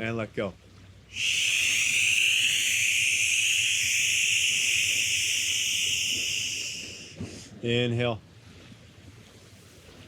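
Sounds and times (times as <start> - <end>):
whispered breathy exhale: 1.1 - 7.6.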